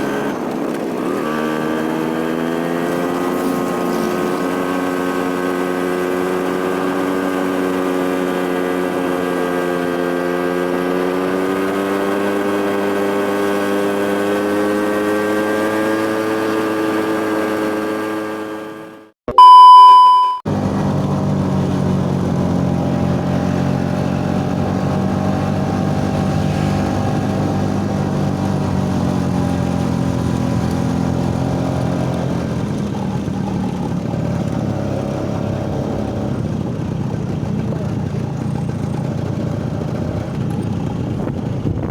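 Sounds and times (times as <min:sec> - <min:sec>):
engine droning: 0:00.0 - 0:19.0, 0:20.5 - 0:41.9
loud pure beep: 0:19.3 - 0:20.5
engine running steadily: 0:20.5 - 0:41.9.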